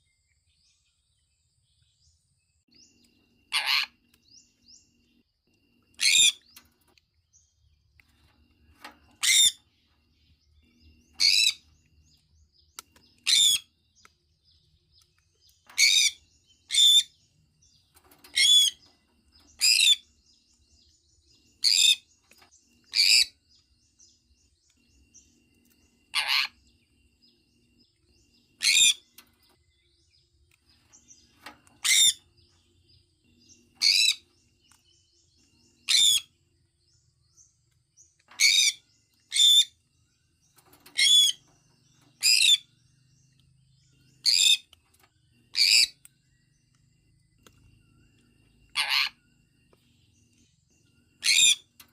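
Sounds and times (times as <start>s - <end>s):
parrot calling: 3.5s - 4.0s, 6.0s - 6.4s, 22.9s - 23.3s, 26.1s - 26.6s, 28.6s - 29.0s, 48.7s - 49.2s, 51.2s - 51.7s.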